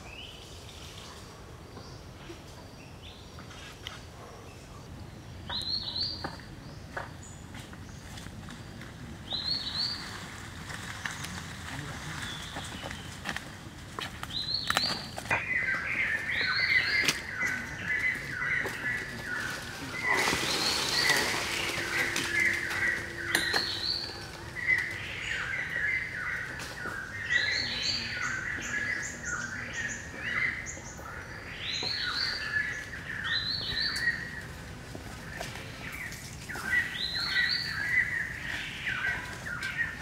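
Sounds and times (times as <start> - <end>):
birds chirping: 0.0 - 40.0
rustling brush: 18.0 - 25.1.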